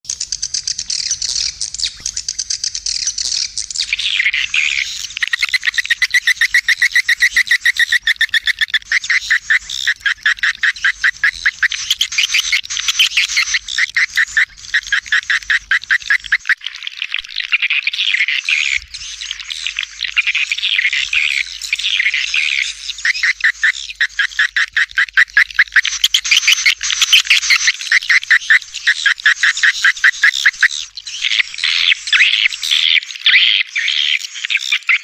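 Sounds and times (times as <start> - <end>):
swiftlet chirping chorus: 0.1 - 16.5, 18.8 - 33.0.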